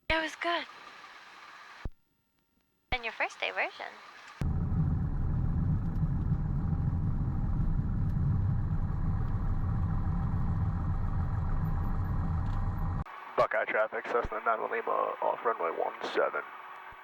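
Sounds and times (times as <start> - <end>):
aircraft engine and propeller: 3.3 - 13.1.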